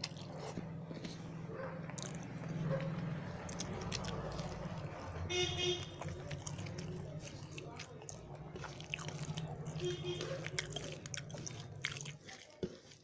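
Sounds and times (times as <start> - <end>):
person chewing: 0.0 - 13.0
wet mouth clicks: 1.9 - 2.4, 3.4 - 5.0, 6.0 - 12.3.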